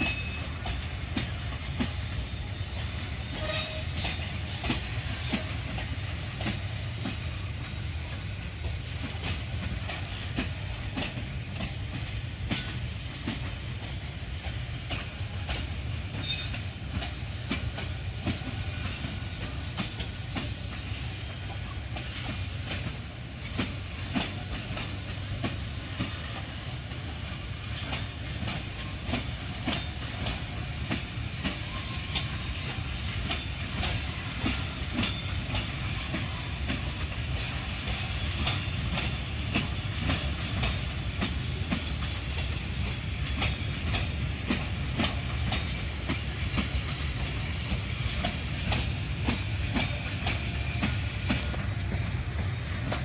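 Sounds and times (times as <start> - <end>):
freight train rumbling past: 0.0 - 53.0
wheels clacking over rail joints: 0.0 - 53.0
high wheel squeals: 20.4 - 21.6.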